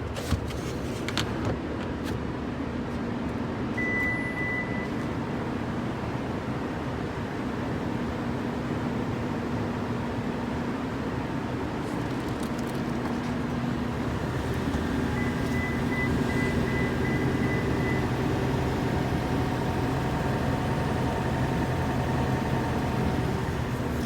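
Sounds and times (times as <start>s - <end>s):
vehicle hum and hiss: 4.9s - 24.0s.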